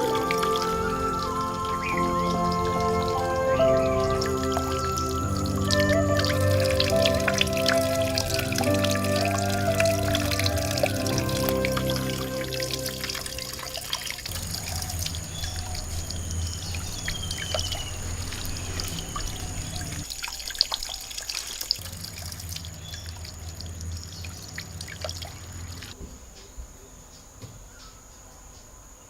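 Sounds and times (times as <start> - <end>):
water trickling and dripping: 0.0 - 26.0
small splashes and clicks: 13.0 - 26.0.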